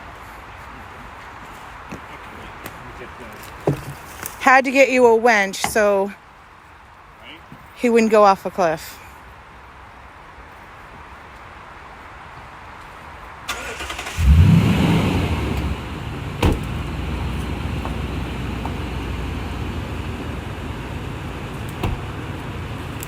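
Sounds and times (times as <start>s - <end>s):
truck engine starting and idling: 13.5s - 23.0s.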